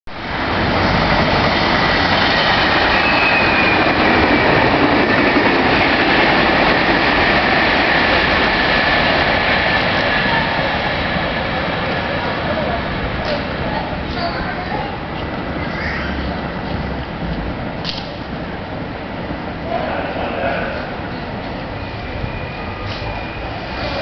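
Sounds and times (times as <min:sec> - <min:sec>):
train wheels rumbling on rails: 0:00.1 - 0:24.0
faint high squeal: 0:02.9 - 0:04.0, 0:21.7 - 0:24.0.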